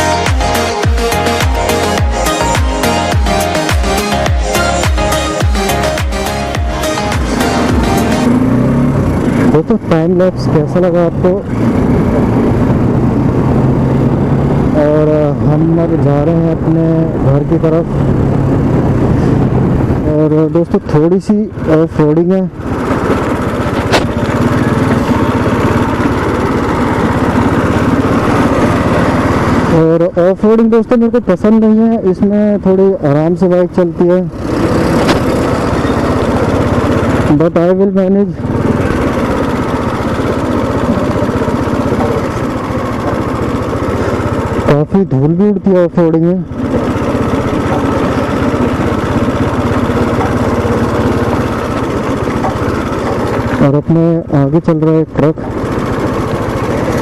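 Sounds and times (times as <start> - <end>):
motorcycle engine running: 0.0 - 57.0
sharp knock: 23.8 - 24.2.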